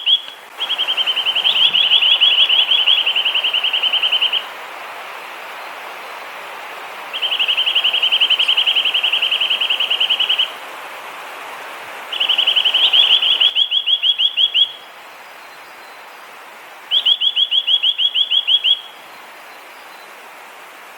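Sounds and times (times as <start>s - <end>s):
nuthatch whistled trills: 0.0s - 4.5s, 7.2s - 10.5s, 12.1s - 14.8s, 16.9s - 19.0s
steady background hiss: 0.0s - 20.9s.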